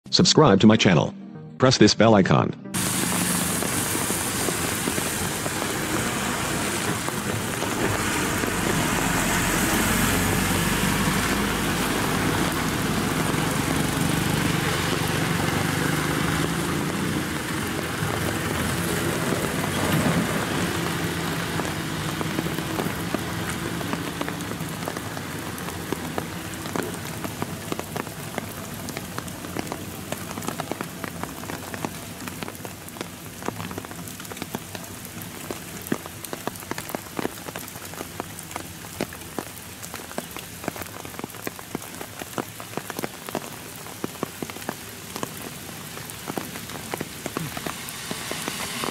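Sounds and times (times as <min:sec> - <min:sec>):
diesel engines running: 0:02.8 - 0:33.0
patter of raindrops: 0:02.8 - 0:48.9
rain falling on a wet road: 0:02.8 - 0:48.9.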